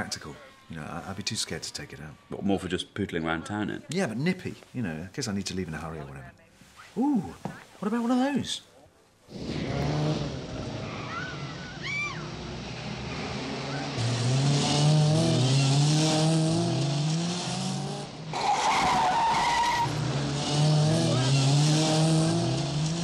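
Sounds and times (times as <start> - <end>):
car engine revving: 9.3 - 23.0
tyre squeals: 10.7 - 12.4, 18.3 - 20.1.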